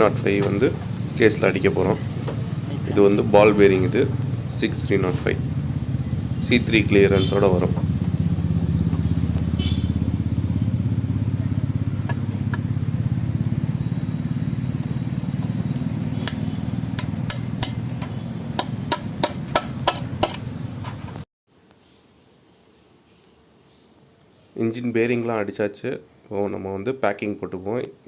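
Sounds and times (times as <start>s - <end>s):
low mechanical drone: 0.0s - 21.2s
hammer knocking on metal: 16.2s - 20.5s.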